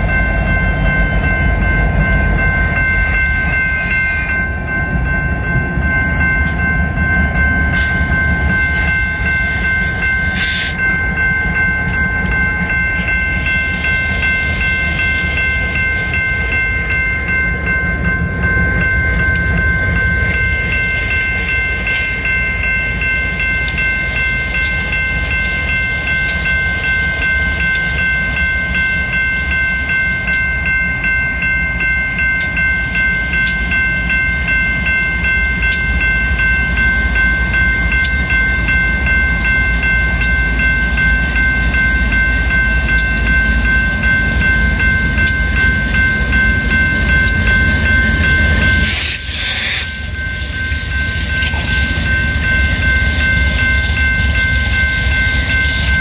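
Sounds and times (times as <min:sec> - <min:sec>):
freight train rumble: 0:00.0 - 0:56.0
high-pitched squeal: 0:48.0 - 0:56.0.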